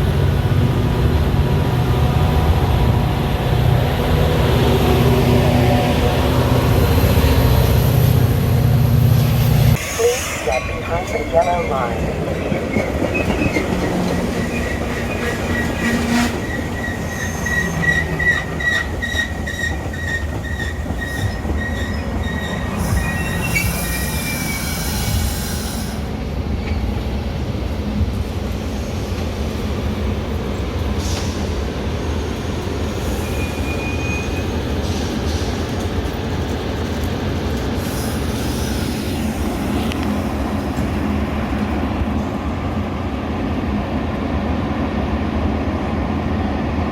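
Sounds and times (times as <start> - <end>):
train rumbling on rails: 0.0 - 46.9
high wheel squeal: 13.1 - 26.0, 33.0 - 35.2.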